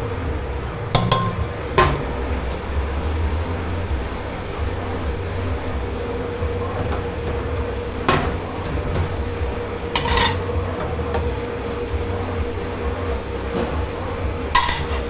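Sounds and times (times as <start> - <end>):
low machine hum: 0.0 - 15.0
dishes and pans clattering: 1.0 - 2.2, 6.7 - 9.2, 9.9 - 11.3, 14.5 - 15.0.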